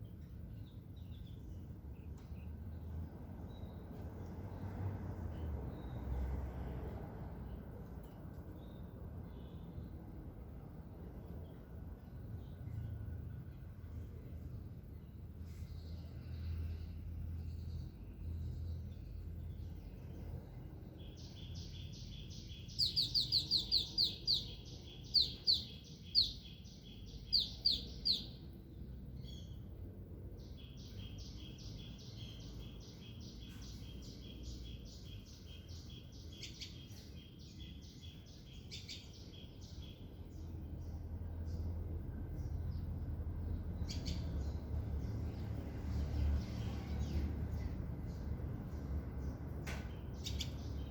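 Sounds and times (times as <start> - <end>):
faint low hum: 0.0 - 31.2
songbird chirping: 0.0 - 50.9.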